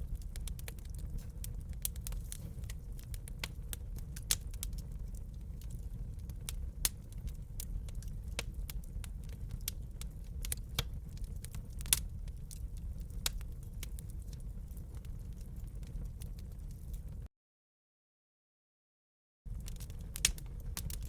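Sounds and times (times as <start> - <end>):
wood fire crackling: 0.0 - 17.3, 19.5 - 21.0.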